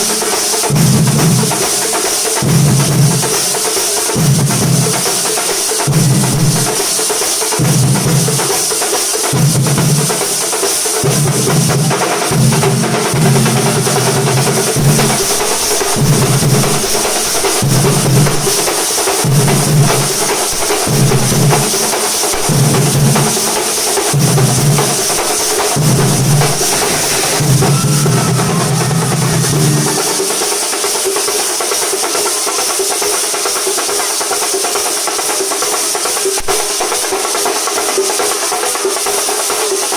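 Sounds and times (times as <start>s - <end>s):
rapid dense drumming: 0.0s - 39.9s
deep low drum pulse: 13.2s - 30.6s.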